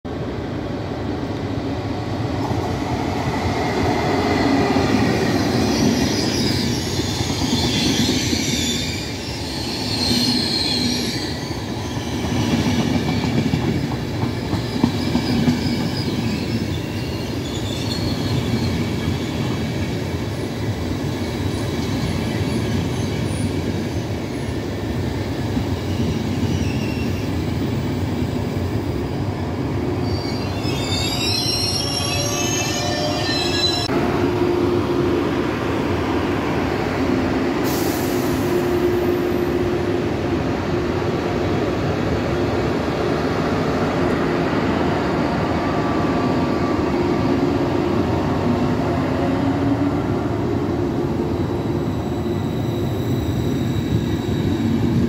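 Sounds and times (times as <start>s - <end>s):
high-pitched wheel squeal: 5.3s - 12.4s, 14.9s - 19.4s, 25.9s - 27.4s, 30.0s - 33.9s, 51.3s - 55.0s.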